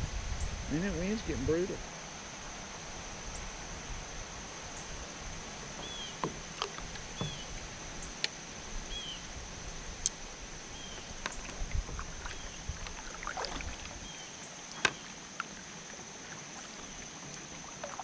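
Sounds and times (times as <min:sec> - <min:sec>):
water noise around a kayak: 0:00.0 - 0:18.0
wind: 0:00.0 - 0:18.0
knocks and clicks against boat: 0:05.7 - 0:08.4, 0:10.9 - 0:13.1, 0:14.7 - 0:15.5.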